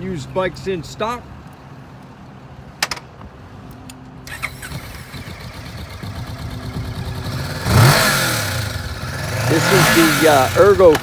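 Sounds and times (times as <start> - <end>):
motorcycle engine running: 4.6 - 11.0.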